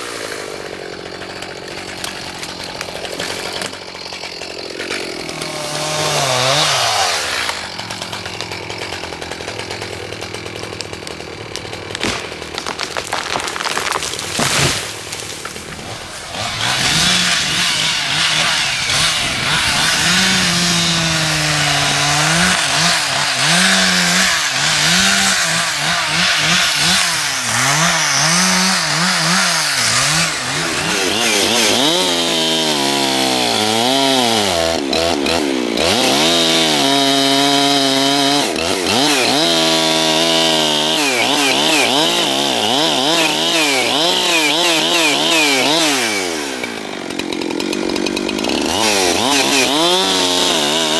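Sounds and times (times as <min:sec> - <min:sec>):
chainsaw cutting wood: 0:00.0 - 0:50.9.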